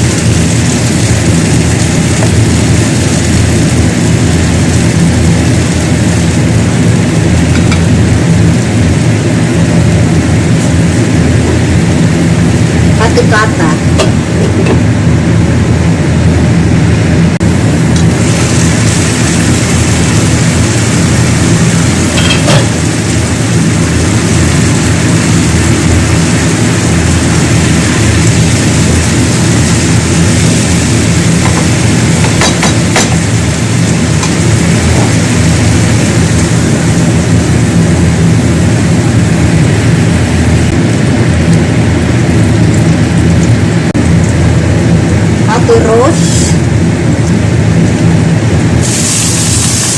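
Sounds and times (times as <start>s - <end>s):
loud machine hum: 0.0s - 49.9s.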